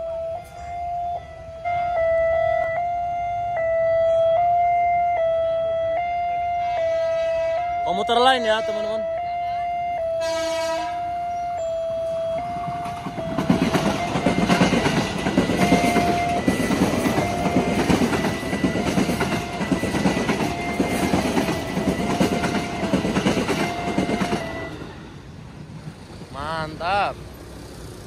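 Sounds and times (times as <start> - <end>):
steady high tone: 0.0 - 25.2
train wheels clattering over rails: 12.5 - 25.1.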